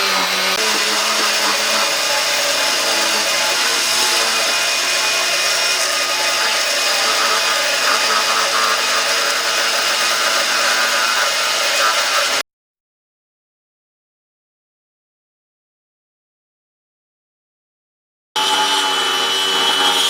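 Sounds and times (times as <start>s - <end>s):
power tool whirring on wood: 0.0s - 12.4s, 18.4s - 20.0s.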